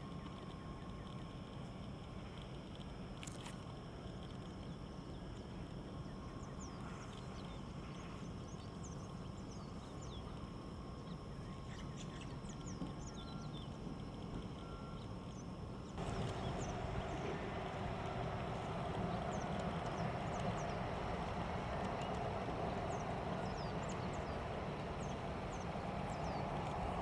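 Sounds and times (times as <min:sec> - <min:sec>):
small birds chirping: 0:14.6 - 0:27.0
low outdoor rumble: 0:15.4 - 0:27.0
steady midrange noise: 0:15.7 - 0:27.0.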